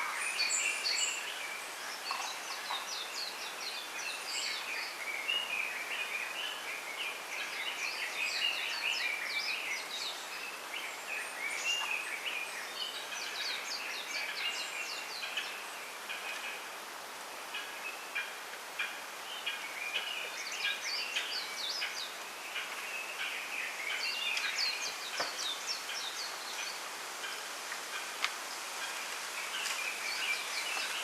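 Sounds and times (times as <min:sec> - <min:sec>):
small birds chirping and twittering: 0:00.0 - 0:31.0
steady soft hiss: 0:00.0 - 0:31.0.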